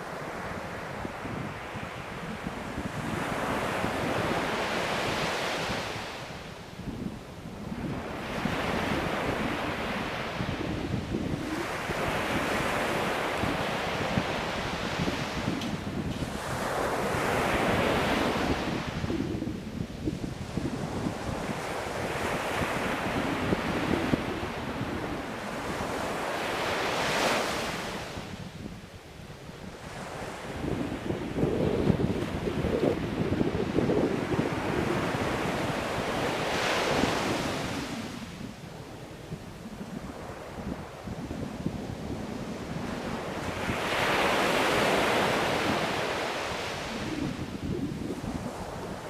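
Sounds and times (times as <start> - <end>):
ocean waves breaking on shore: 0.0 - 49.0
sea waves breaking on shore: 29.6 - 49.0.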